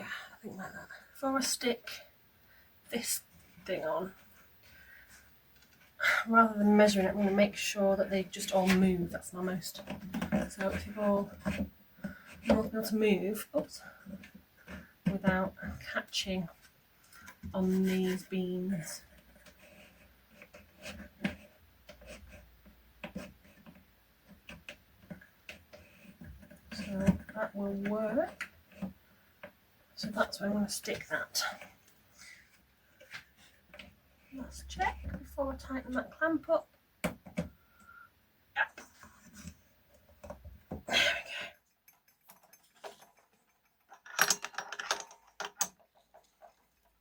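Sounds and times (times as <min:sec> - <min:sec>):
wooden clicks and knocks: 0:41.9 - 0:46.6.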